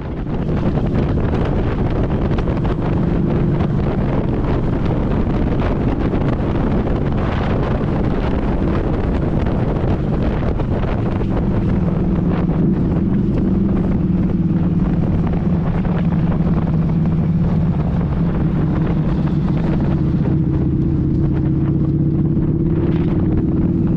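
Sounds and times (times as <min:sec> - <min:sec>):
motorcycle engine running: 0:00.0 - 0:23.9
wind buffeting microphone: 0:00.0 - 0:23.9.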